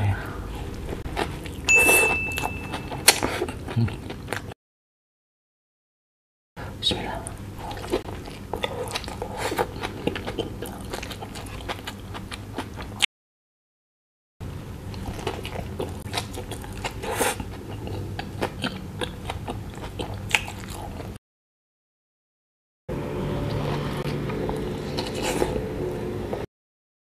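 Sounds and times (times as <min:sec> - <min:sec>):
chewing and biting soft bun: 0:00.6 - 0:04.6, 0:07.6 - 0:13.0, 0:14.9 - 0:21.2, 0:23.4 - 0:26.4.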